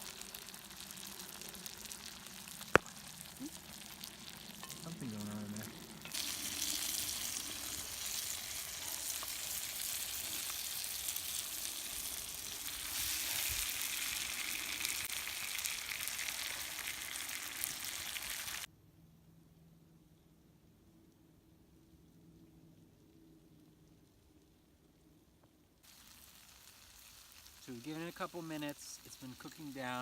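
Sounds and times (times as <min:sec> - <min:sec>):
vegetables sizzling in a pan: 0:00.0 - 0:18.7, 0:25.8 - 0:30.0.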